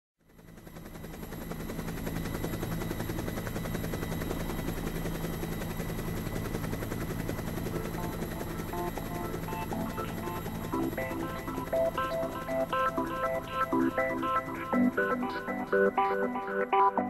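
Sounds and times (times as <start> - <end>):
helicopter rotor chopping: 0.3 - 17.0
high whine: 7.6 - 17.0.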